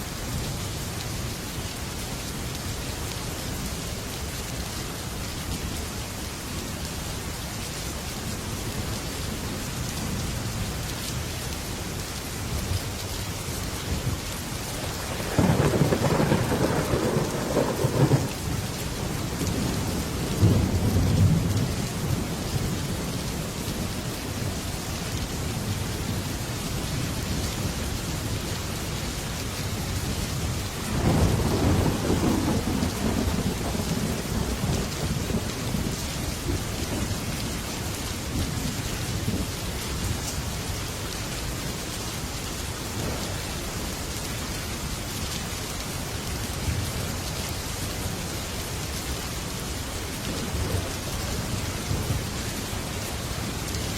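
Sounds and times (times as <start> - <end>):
heavy rain on a metal roof: 0.0 - 53.9
thunder rumbling: 14.0 - 23.8, 30.1 - 37.4.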